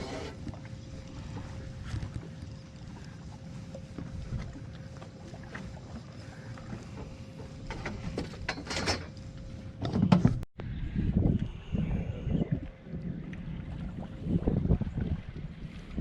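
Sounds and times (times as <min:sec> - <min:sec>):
wind rumbling on microphone: 0:00.0 - 0:05.6, 0:09.3 - 0:16.0
faint steady hum: 0:00.0 - 0:10.0.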